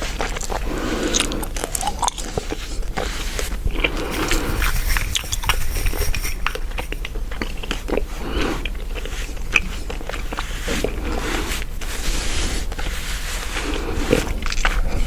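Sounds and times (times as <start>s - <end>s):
gum chewing clicks: 0.2s - 11.0s.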